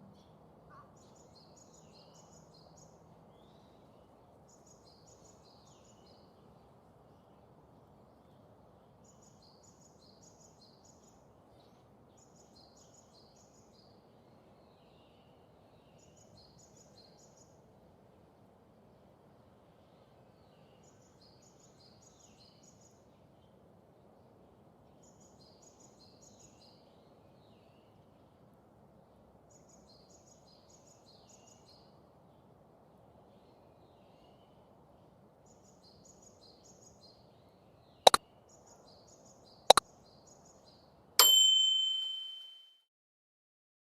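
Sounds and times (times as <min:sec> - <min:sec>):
bright bell ding: 0:41.2 - 0:42.7.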